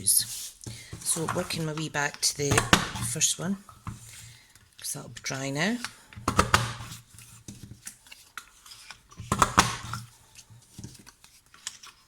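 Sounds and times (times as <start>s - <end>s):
paper rustling and clicking: 5.8s - 12.0s.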